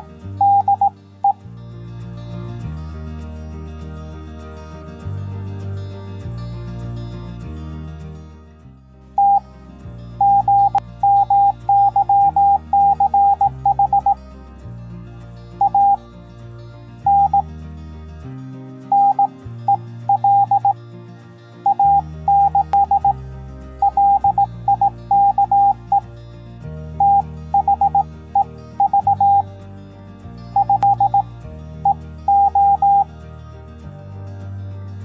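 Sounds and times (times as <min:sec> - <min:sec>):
electronic morse-like beeps: 0:00.0 - 0:01.4, 0:09.2 - 0:09.5, 0:10.2 - 0:14.2, 0:15.6 - 0:16.0, 0:17.1 - 0:17.4, 0:18.9 - 0:20.8, 0:21.6 - 0:23.2, 0:23.8 - 0:26.1, 0:27.0 - 0:29.5, 0:30.6 - 0:33.1
soft background music: 0:00.0 - 0:35.0.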